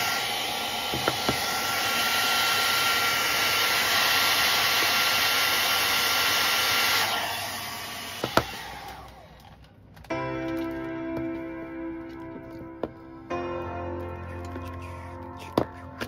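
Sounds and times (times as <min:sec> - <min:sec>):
electric blower whining: 0:00.0 - 0:10.7.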